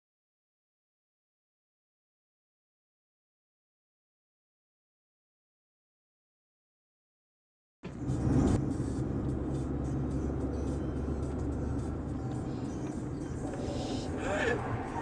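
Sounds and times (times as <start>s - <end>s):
car engine hum: 7.8s - 15.0s
road rumble: 7.8s - 15.0s.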